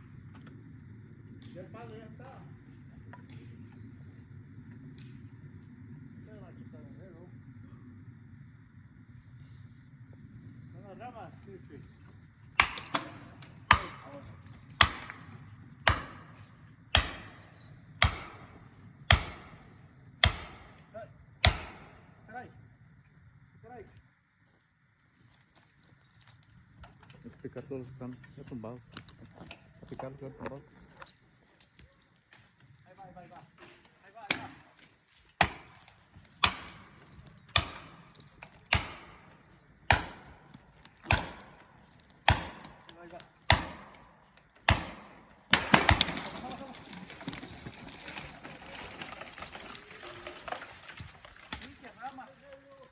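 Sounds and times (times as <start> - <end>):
hand tool striking wood: 12.6 - 14.1, 36.4 - 36.8, 41.0 - 41.4.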